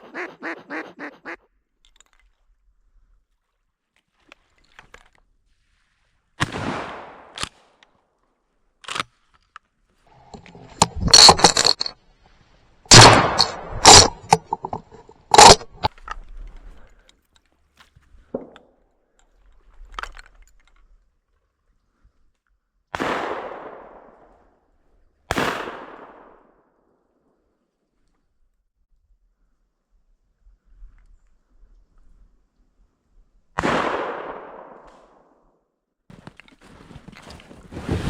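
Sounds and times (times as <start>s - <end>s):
sharp cracks and bangs: 10.3s - 11.9s, 12.9s - 15.9s.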